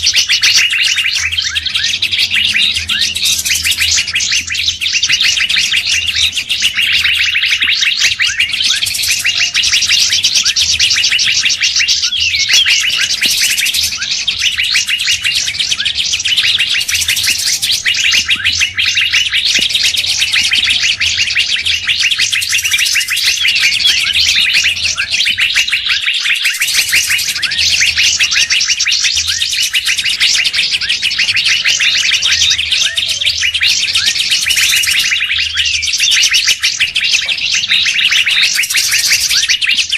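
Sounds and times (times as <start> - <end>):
chorus of small birds chirping: 0.0 - 39.9.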